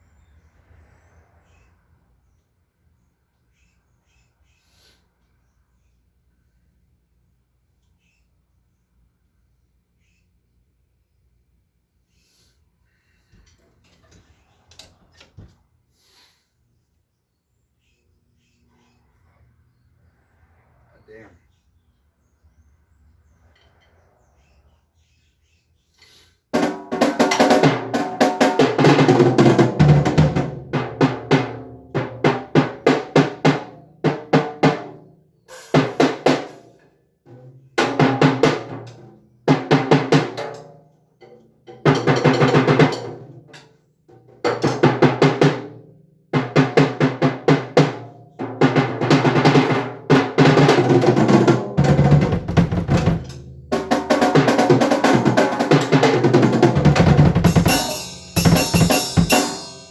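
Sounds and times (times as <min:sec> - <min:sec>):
drum kit beats and fills: 0:26.6 - 0:36.7, 0:37.3 - 0:40.7, 0:41.7 - 0:43.5, 0:44.1 - 0:59.9.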